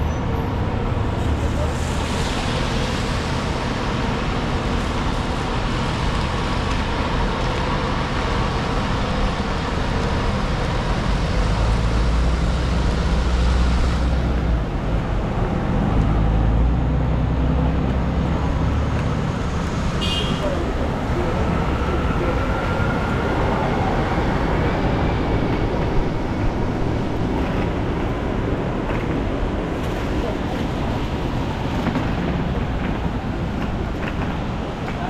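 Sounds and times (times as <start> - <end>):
large vehicle engine rumble: 0.0 - 35.0
tyre hiss on wet road: 1.0 - 6.6.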